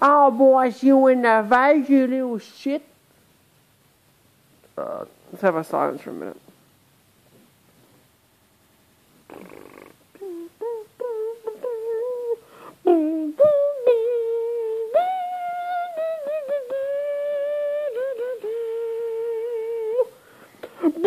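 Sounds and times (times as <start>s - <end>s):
person humming: 9.3s - 21.0s.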